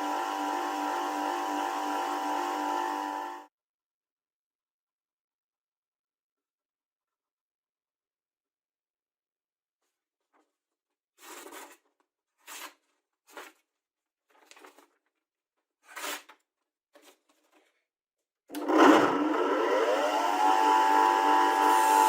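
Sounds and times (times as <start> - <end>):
electric power tool motor: 0.0 - 3.4, 18.5 - 22.0
rubbing and scraping: 11.2 - 13.6, 15.8 - 16.4.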